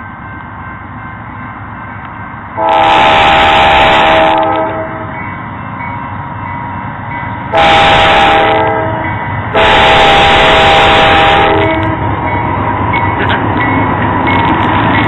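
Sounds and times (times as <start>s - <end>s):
train noise on rails: 0.0s - 15.0s
locomotive air horn blasts: 2.6s - 5.1s, 7.5s - 12.0s.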